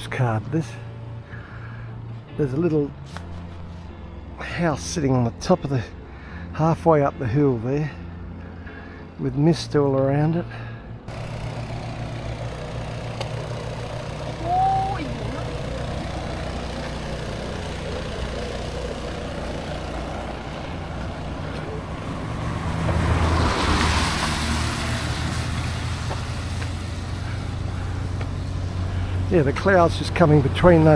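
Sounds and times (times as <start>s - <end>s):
vehicle engine running: 10.6s - 30.9s
vehicle passing close: 11.1s - 30.9s.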